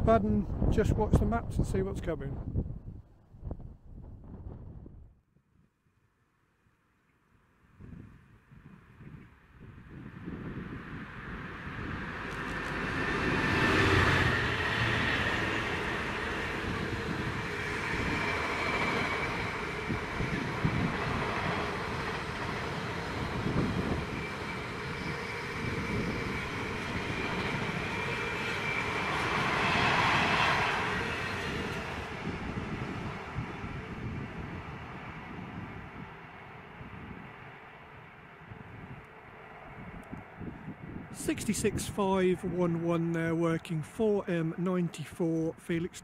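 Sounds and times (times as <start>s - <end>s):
freight train rumbling past: 9.6s - 46.0s.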